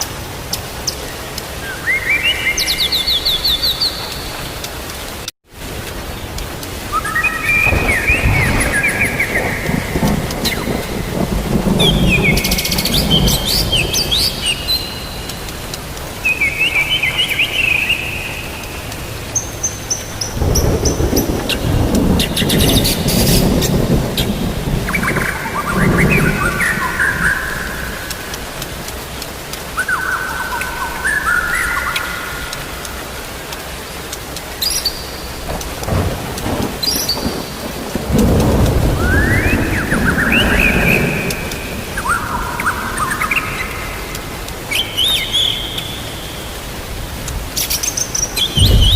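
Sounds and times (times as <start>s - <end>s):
steady rain: 0.0s - 48.9s
birds chirping: 0.5s - 5.3s, 6.1s - 48.9s
thunder rumble: 6.4s - 17.2s, 20.0s - 29.8s, 35.3s - 44.7s, 48.3s - 48.9s.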